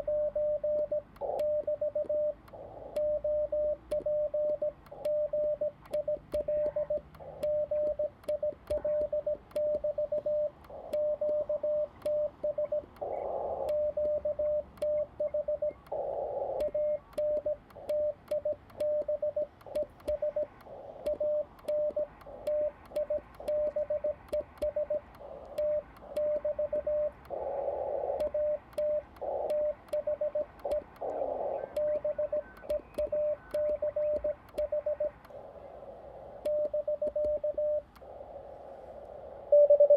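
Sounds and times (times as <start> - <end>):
morse code tone: 0.0 - 15.8, 16.5 - 27.2, 28.0 - 35.2, 36.4 - 37.9, 39.5 - 39.9
radio band hiss: 19.5 - 39.9.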